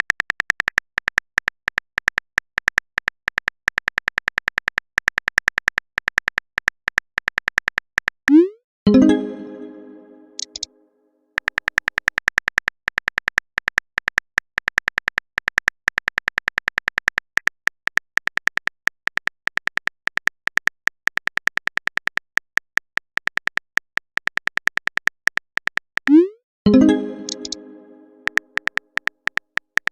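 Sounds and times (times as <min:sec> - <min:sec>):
keyboard typing clicks: 0:00.0 - 0:10.7, 0:24.5 - 0:29.9.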